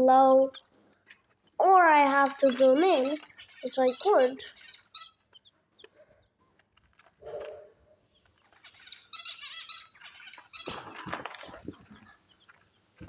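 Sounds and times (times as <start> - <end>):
small birds chirping: 0.0 - 13.0
rustling: 4.4 - 13.0.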